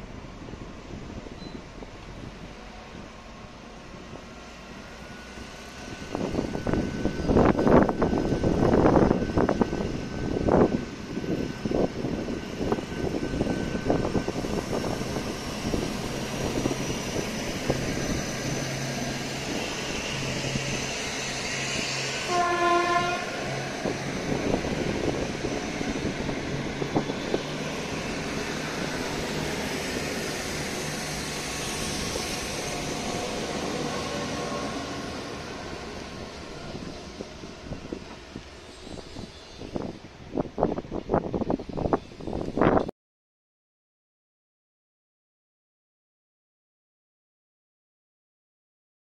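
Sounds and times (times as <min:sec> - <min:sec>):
diesel train engine humming: 0:00.0 - 0:42.8
train horn: 0:22.2 - 0:23.6.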